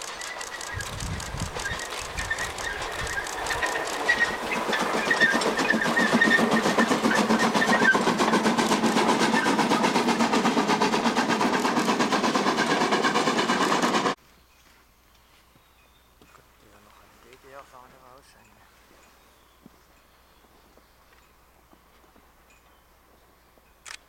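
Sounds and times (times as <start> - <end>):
train wheels clattering on rails: 0.0 - 14.2
thin high squeals: 0.1 - 8.2.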